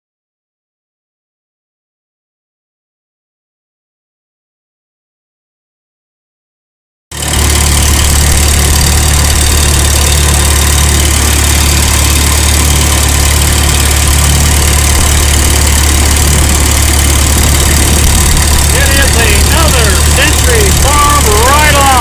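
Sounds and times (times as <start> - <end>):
tractor engine droning: 7.2 - 22.0.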